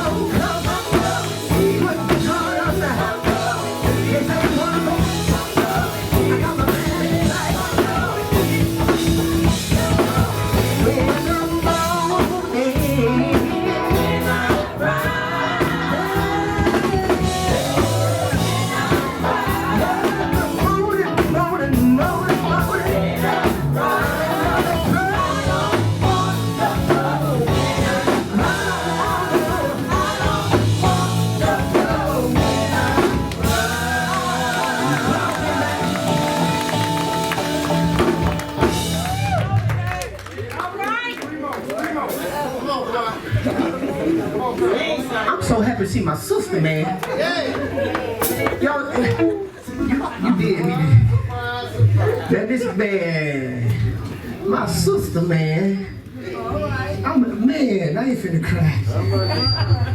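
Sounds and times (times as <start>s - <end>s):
person singing solo: 0.0s - 36.9s
gospel band playing: 0.0s - 59.9s.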